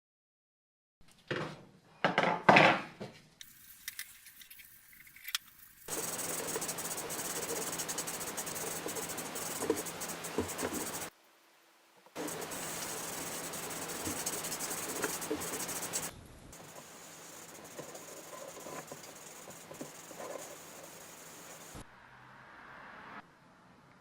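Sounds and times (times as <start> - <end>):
steady even hiss: 3.4 - 11.2, 12.1 - 21.8.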